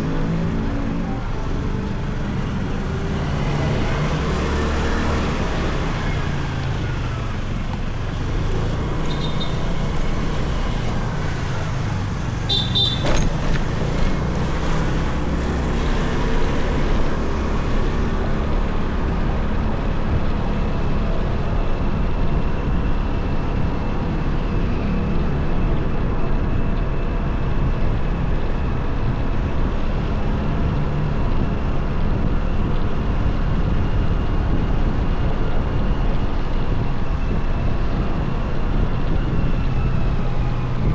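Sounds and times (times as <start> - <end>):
motorcycle engine and road rumble: 0.0 - 40.9
passing traffic: 0.0 - 40.9.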